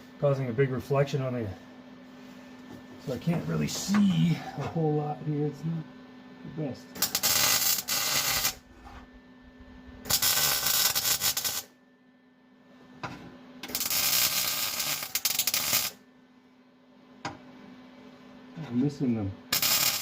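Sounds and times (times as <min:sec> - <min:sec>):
welder arc crackling: 0:07.0 - 0:08.6, 0:10.0 - 0:11.7, 0:13.6 - 0:16.0, 0:19.5 - 0:20.0.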